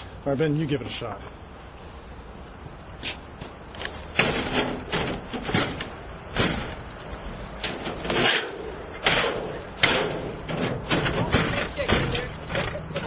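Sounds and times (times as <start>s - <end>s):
window screen banging and scraping: 4.1s - 7.0s, 7.6s - 13.0s.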